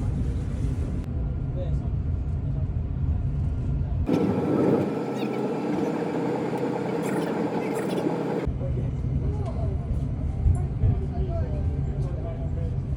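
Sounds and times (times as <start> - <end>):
passing traffic rumble: 4.1 - 8.5.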